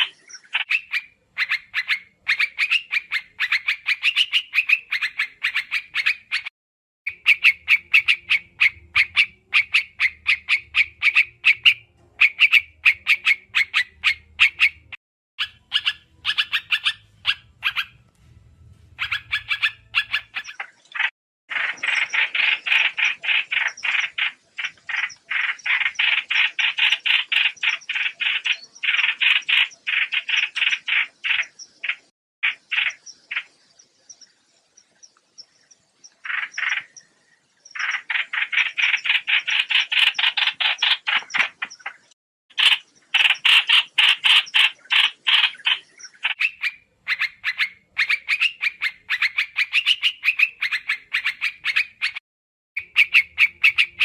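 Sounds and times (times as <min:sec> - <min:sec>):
songbird calling in sharp notes: 0:00.0 - 0:06.5, 0:07.1 - 0:52.2, 0:52.8 - 0:54.0
faint low hum: 0:16.0 - 0:20.2.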